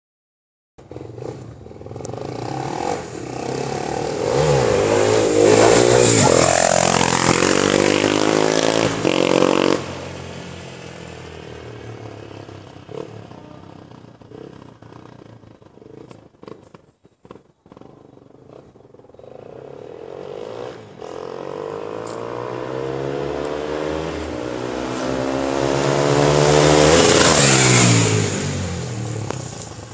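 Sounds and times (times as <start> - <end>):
motorcycle engine revving: 0.8 - 29.9.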